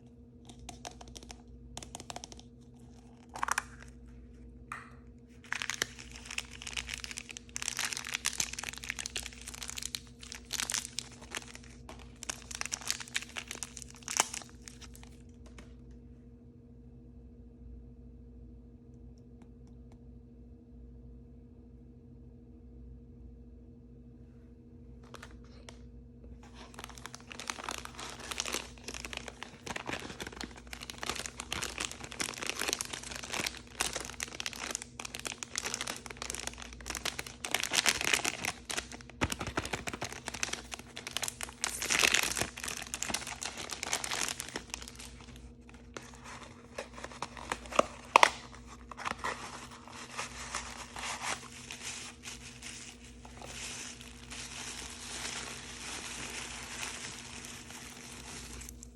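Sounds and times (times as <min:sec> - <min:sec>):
plastic wrappers crinkling and tearing: 0:00.4 - 0:04.0, 0:05.3 - 0:15.8, 0:26.4 - 0:58.9.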